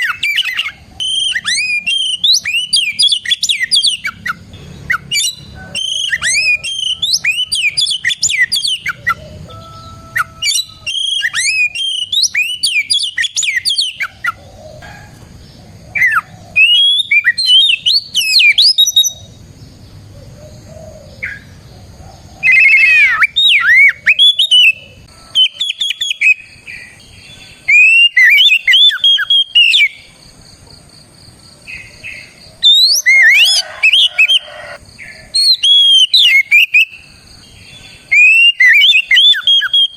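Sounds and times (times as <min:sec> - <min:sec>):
bird singing whistled phrases: 0:00.0 - 0:14.1, 0:16.0 - 0:19.3, 0:22.4 - 0:26.6, 0:27.6 - 0:30.1, 0:32.6 - 0:34.8, 0:35.4 - 0:37.0, 0:38.0 - 0:39.9.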